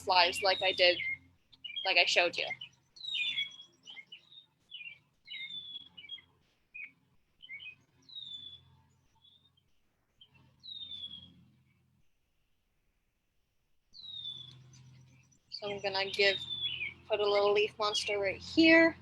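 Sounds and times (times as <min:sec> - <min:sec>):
songbird whistling phrase: 0:00.0 - 0:04.2, 0:15.5 - 0:18.9
bird chirps: 0:00.0 - 0:11.4, 0:14.0 - 0:19.0.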